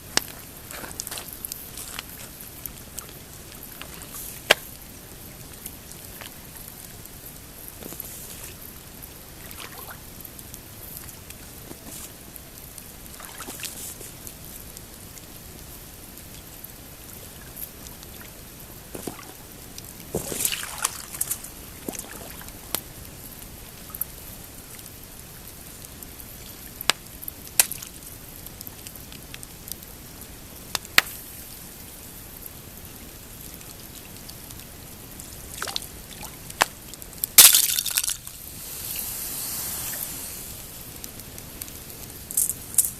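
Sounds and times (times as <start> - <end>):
campfire crackling and popping: 0.0 - 42.9
waves lapping against rocks: 0.2 - 4.8, 5.4 - 10.1, 13.0 - 14.2, 18.0 - 22.8, 37.4 - 41.3.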